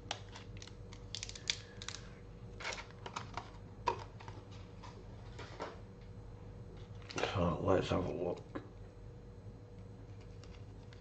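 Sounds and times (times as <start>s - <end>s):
plastic parts clicking and tapping: 0.1s - 2.0s.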